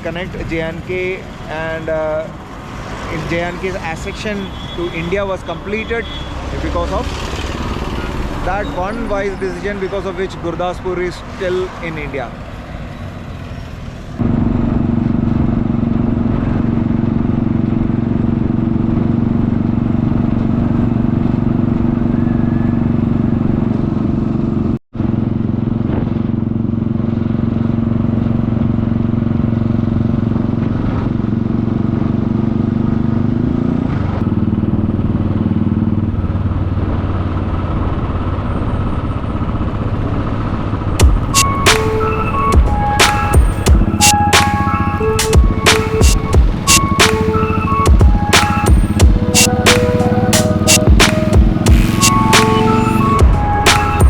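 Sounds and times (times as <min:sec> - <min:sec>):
road and wind noise: 0:00.0 - 0:54.0
motorcycle engine running: 0:14.2 - 0:54.0.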